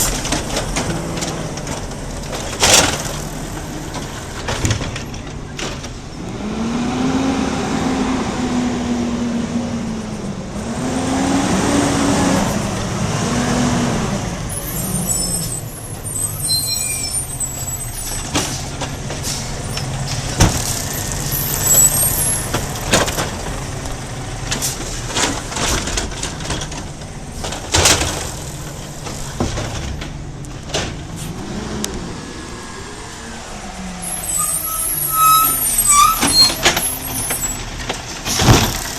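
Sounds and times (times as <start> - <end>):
knocks and clatter: 0.0 - 6.1, 17.6 - 31.4, 36.2 - 38.9
truck engine revving: 6.2 - 26.4, 31.0 - 38.9.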